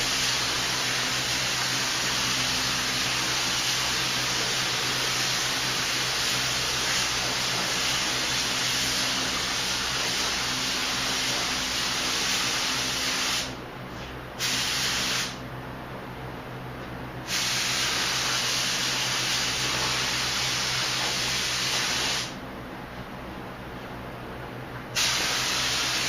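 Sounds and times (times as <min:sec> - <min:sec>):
paint spray gun hissing: 0:00.0 - 0:13.6, 0:14.4 - 0:15.4, 0:17.3 - 0:22.4, 0:25.0 - 0:26.0.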